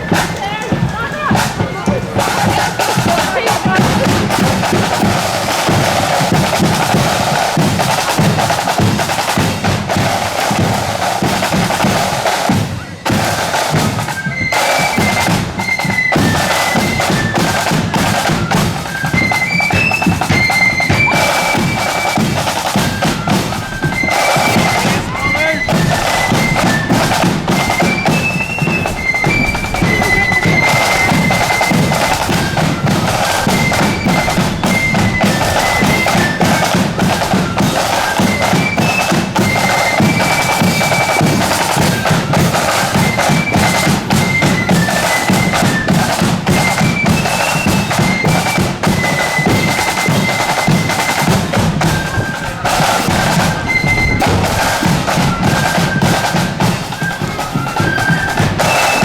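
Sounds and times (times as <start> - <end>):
snare and bass drums: 0.0 - 59.0
shrill melody line: 20.2 - 41.5.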